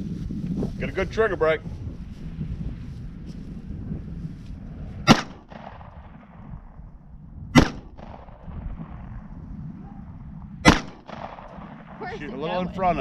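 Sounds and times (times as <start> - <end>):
light wind noise: 0.0 - 13.0
pistol shots: 5.0 - 6.5, 7.5 - 9.1, 10.6 - 12.1.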